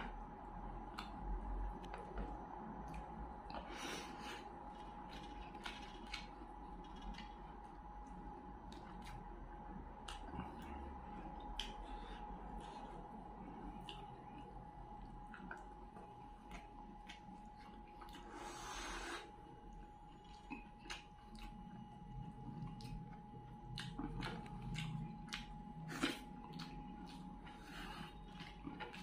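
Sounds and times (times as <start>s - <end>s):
wet chewing and lip smacks: 0.8s - 1.2s, 4.7s - 18.5s, 19.7s - 29.0s.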